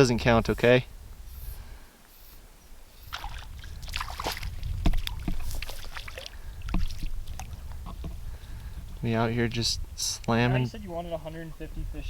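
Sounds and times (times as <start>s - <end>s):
water splashing and sloshing: 3.0s - 9.1s
sharp knocks: 4.8s - 5.8s, 6.7s - 9.0s.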